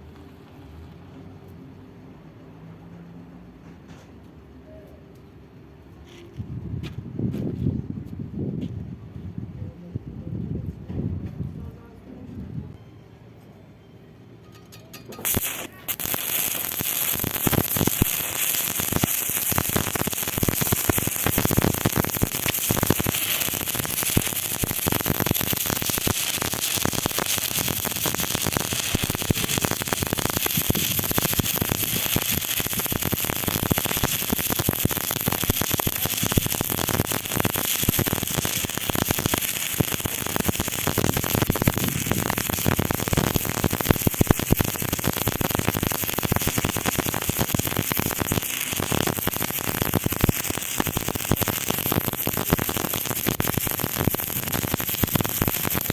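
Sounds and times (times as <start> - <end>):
welding arc crackling: 14.8 - 55.9.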